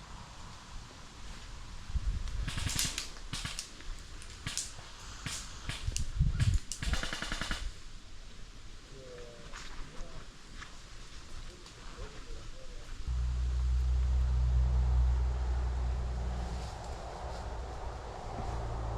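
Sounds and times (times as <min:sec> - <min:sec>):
airsoft gun shots and bursts: 0:02.4 - 0:03.7, 0:04.4 - 0:07.8
low thuds: 0:13.1 - 0:18.9.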